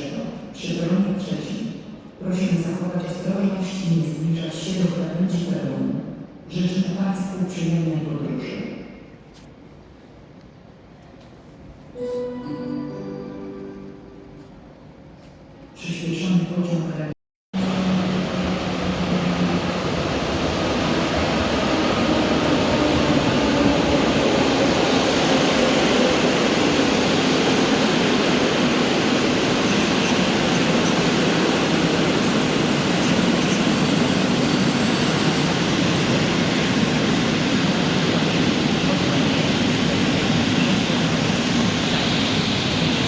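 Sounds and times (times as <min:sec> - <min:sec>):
train rumble and hiss: 0:17.6 - 0:43.0.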